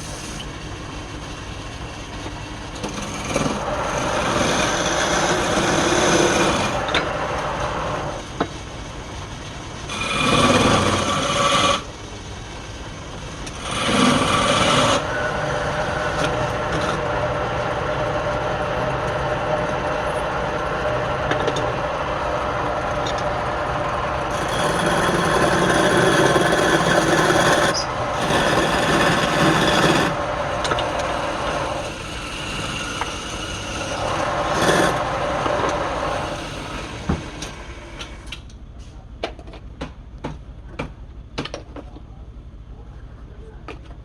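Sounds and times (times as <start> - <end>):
wood lathe running: 0.0 - 38.4
tool rasping on spinning wood: 2.6 - 8.8, 9.6 - 38.2.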